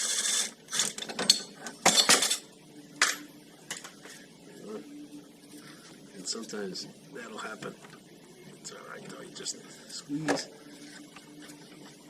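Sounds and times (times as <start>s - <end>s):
metal tools clinking: 0.1s - 3.9s.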